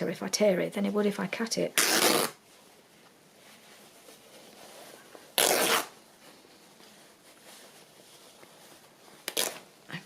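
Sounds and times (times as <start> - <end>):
fabric ripping: 1.7 - 2.4, 5.3 - 6.0, 9.2 - 9.7.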